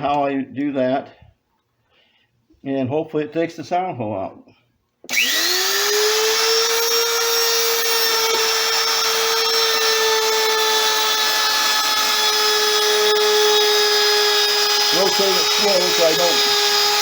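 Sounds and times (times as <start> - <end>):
electric router whining: 5.1 - 17.0.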